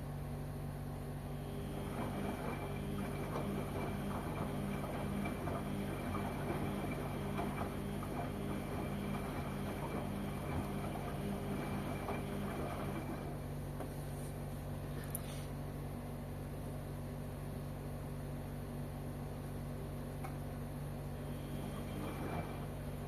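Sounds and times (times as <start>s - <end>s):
washing machine motor hum: 0.0s - 23.0s
water and laundry sloshing: 1.5s - 13.5s, 21.4s - 23.0s.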